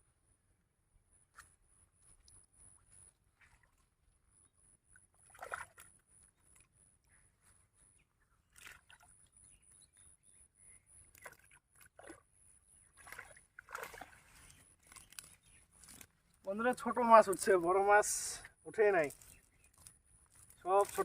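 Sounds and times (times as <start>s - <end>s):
water splashing and sloshing: 2.1s - 4.3s, 4.9s - 6.8s, 8.4s - 9.4s, 11.1s - 16.4s.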